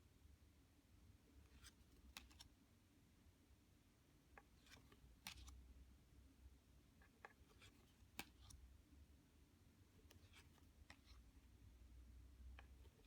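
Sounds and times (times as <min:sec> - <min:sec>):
quiet room hum: 0:00.0 - 0:13.0
cards clicking and tapping: 0:01.5 - 0:02.5, 0:04.4 - 0:05.6.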